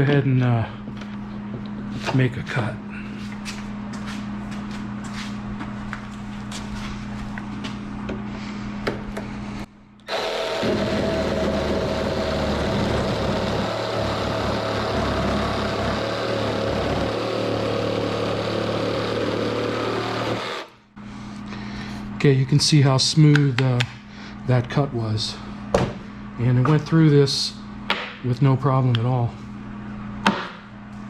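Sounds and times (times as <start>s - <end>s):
jigsaw cutting wood: 10.1s - 20.8s
low steady hum: 20.8s - 31.0s.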